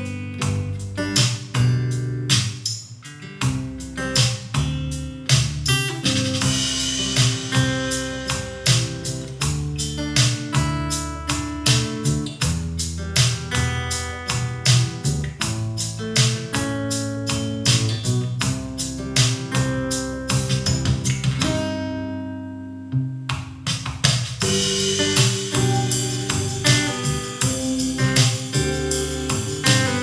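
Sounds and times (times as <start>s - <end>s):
instrumental music through speakers: 0.0s - 21.6s, 22.9s - 30.0s.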